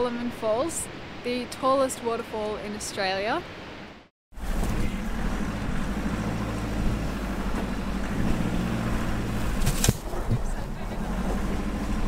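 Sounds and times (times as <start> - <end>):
vehicle engine hum and road noise: 4.3 - 12.0.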